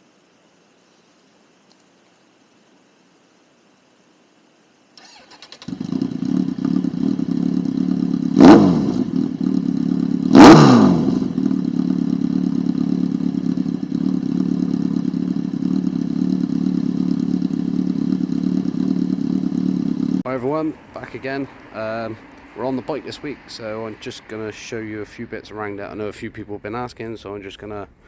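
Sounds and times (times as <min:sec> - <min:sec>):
motorcycle throttle revving: 0:05.0 - 0:24.5
motorcycle engine starting and idling: 0:05.0 - 0:27.9.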